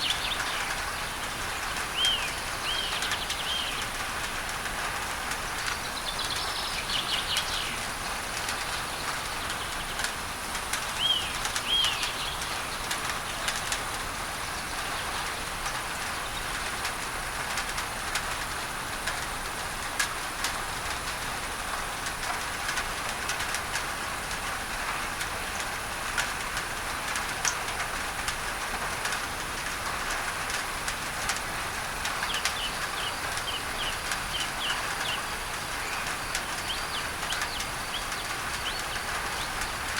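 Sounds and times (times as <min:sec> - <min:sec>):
rain on a tin roof: 0:00.0 - 0:39.9
birds chirping: 0:11.0 - 0:13.6, 0:32.1 - 0:39.9.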